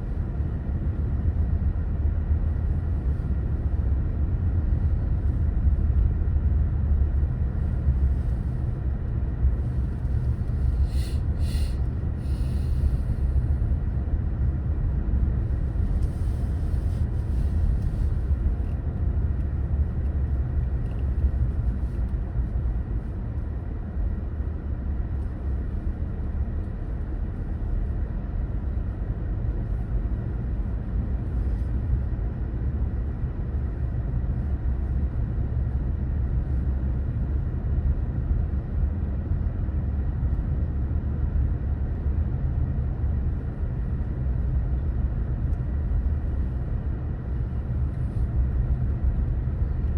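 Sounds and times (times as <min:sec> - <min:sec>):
car engine and road noise: 0:00.1 - 0:39.4.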